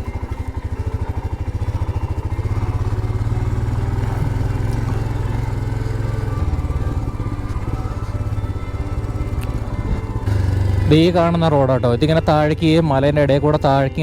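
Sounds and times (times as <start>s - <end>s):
motorcycle engine thudding: 0.0s - 13.1s.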